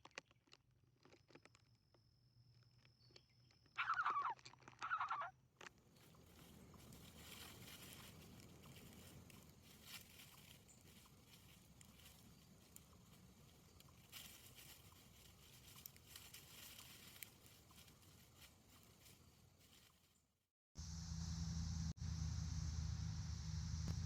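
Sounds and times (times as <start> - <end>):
faint rustling: 5.9 - 20.2.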